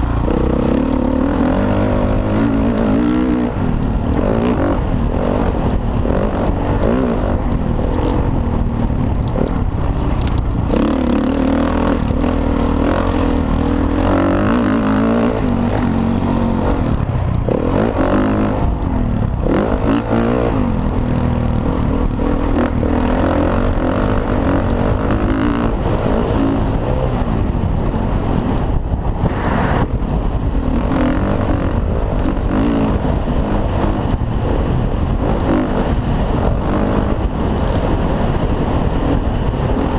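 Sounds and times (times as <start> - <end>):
dirt bike engines revving: 0.0 - 39.9.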